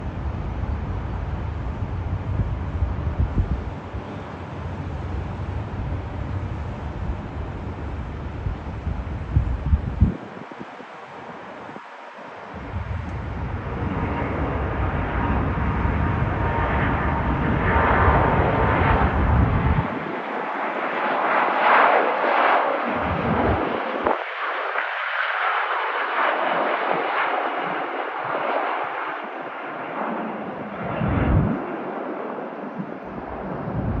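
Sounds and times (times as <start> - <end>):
jet engines roaring at takeoff: 0.0 - 34.0.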